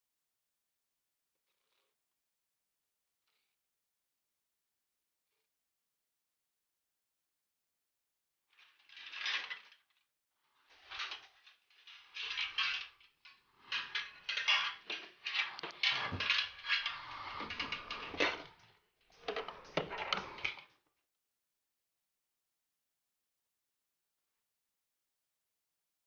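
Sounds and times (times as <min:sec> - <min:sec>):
hard objects clattering and clicking: 0:10.7 - 0:20.7.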